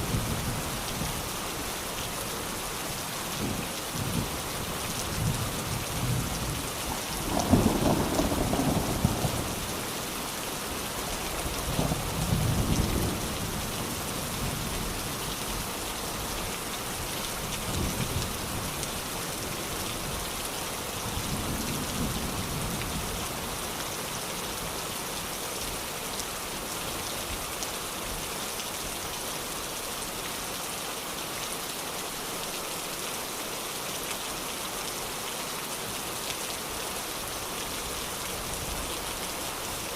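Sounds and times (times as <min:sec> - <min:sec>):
heavy rain falling: 0:00.0 - 0:39.9
low rolls of thunder: 0:07.0 - 0:09.8, 0:11.6 - 0:13.6.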